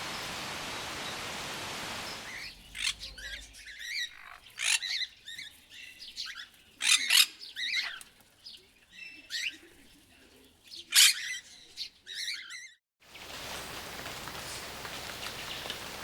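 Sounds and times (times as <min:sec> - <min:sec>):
bird chirps and squawks: 0:02.3 - 0:05.5, 0:10.9 - 0:12.8.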